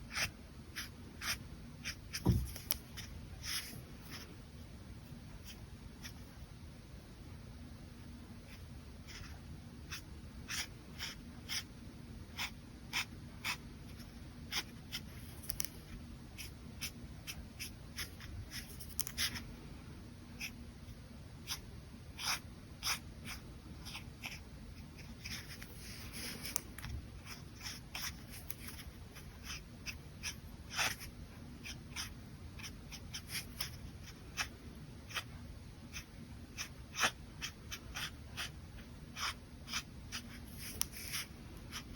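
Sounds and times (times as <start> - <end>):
brush pen stroking on paper: 25.0 - 31.1, 35.9 - 41.9.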